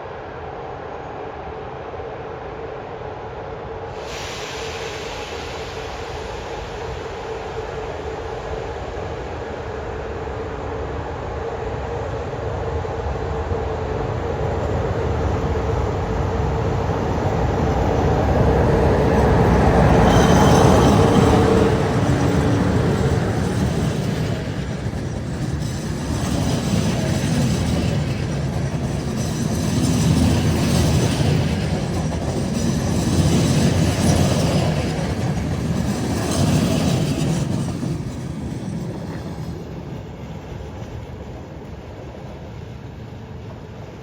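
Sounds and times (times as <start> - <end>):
train wheels clattering on track: 14.5 - 44.0
wheel squeal: 18.5 - 39.6.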